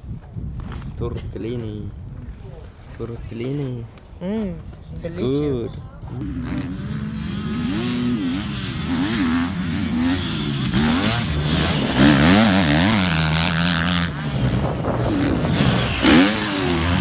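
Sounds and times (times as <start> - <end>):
motocross bike engine revving: 6.2 - 17.0.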